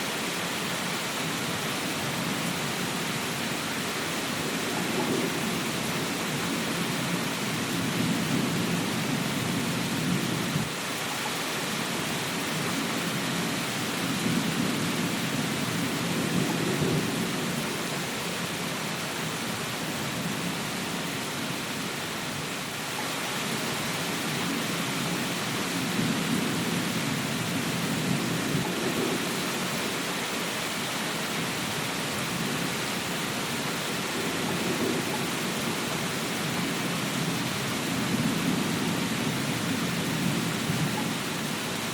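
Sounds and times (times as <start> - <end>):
steady rain: 0.0 - 41.9.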